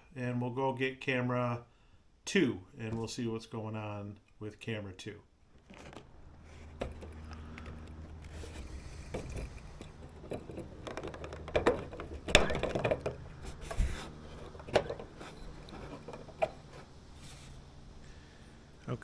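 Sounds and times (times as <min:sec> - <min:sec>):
security camera clicks and knocks: 0:09.1 - 0:16.9.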